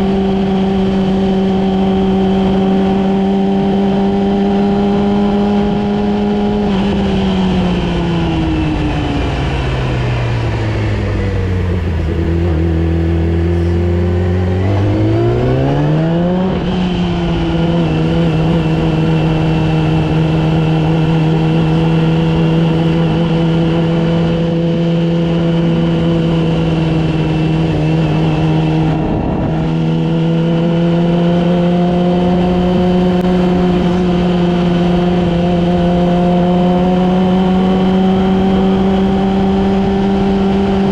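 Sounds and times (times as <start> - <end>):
motorcycle engine while riding: 0.0 - 40.9.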